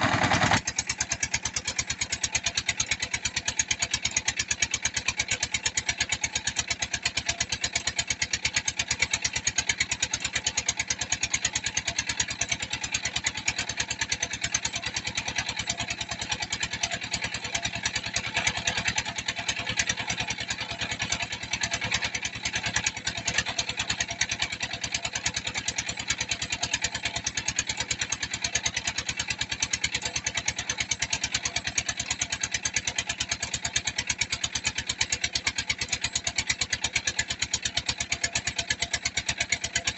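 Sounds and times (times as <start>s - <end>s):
press machine engine running: 0.0s - 0.6s.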